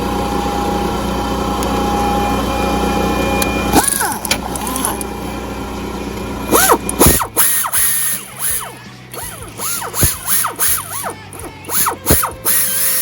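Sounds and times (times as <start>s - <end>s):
ratchet clicking: 6.5s - 13.0s.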